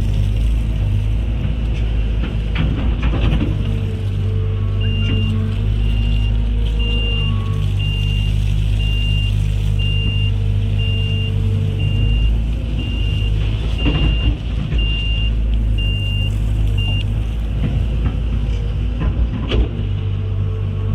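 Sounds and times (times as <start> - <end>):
diesel machinery engine running: 0.0 - 20.9
backup alarm beeping: 4.8 - 17.1.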